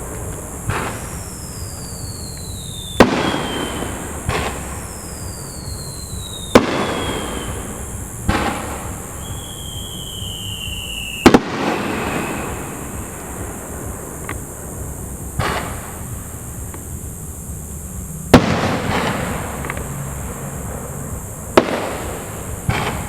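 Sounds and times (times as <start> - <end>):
fireworks bangs: 0.0 - 23.0
fireworks crackle: 0.0 - 23.0
high descending whistles: 0.7 - 13.2.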